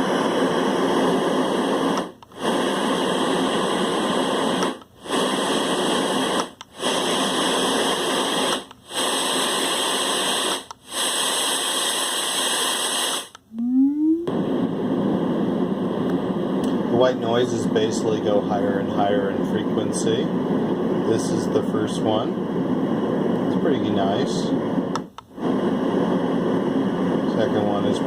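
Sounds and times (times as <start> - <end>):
white noise hiss: 0.0 - 13.5, 14.1 - 28.0
rising electronic tone: 13.5 - 14.4.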